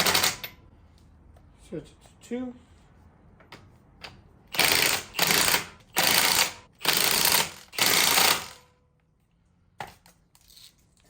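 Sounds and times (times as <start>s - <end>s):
impact wrench hammering: 4.5s - 8.7s.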